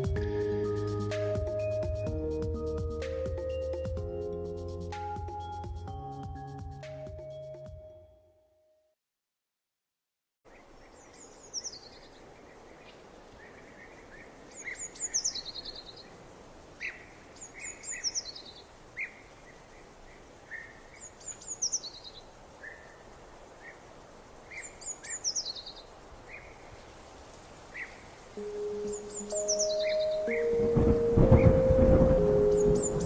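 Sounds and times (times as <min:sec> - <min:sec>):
outdoor background hiss: 0:00.0 - 0:07.7, 0:10.4 - 0:33.0
songbird chirping phrase: 0:00.0 - 0:08.8, 0:10.5 - 0:26.8, 0:27.7 - 0:33.0
other birds chirping: 0:10.5 - 0:26.8, 0:27.7 - 0:33.0.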